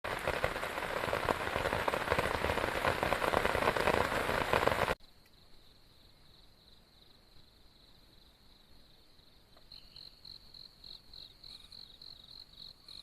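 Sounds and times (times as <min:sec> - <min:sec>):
heavy rain falling: 0:00.0 - 0:05.0.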